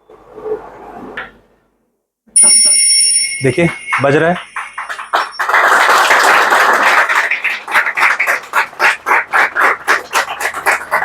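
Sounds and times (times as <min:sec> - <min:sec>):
thin phone loudspeaker audio: 0:03.4 - 0:05.4.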